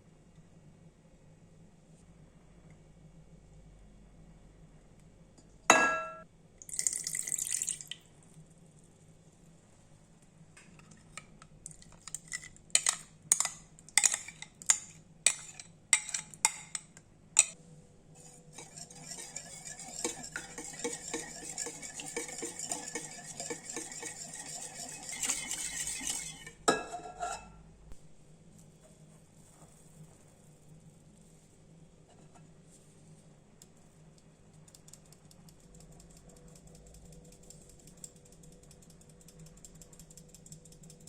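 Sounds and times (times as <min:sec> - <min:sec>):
utensils clinking in a bowl: 0:11.7 - 0:17.6, 0:18.6 - 0:27.5
rhythmic mixing in a bowl: 0:12.8 - 0:16.8, 0:18.2 - 0:26.7.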